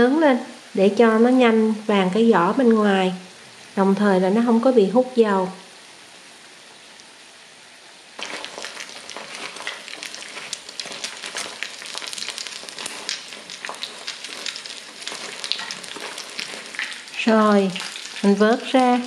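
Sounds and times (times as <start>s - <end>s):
cutlets sizzling in hot oil: 8.1s - 19.0s.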